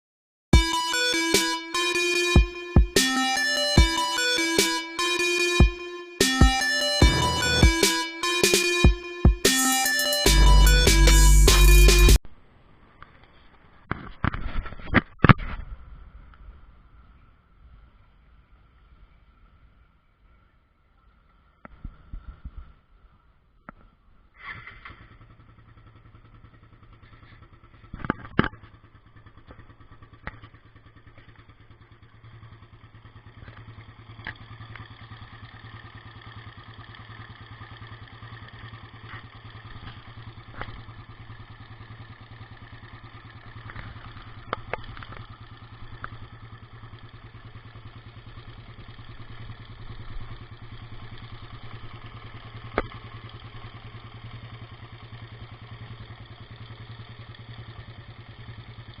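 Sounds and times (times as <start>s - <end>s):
motorcycle engine rattling: 21.1s - 59.0s.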